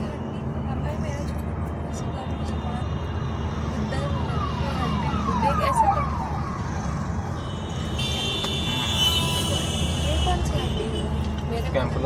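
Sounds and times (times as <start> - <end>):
road and engine rumble: 0.0 - 12.0
siren yelping: 4.2 - 7.1.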